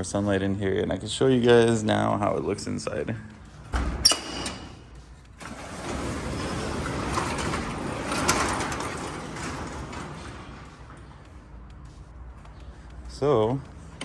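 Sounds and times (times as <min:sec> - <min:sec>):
shop door sliding open: 0:03.6 - 0:11.6.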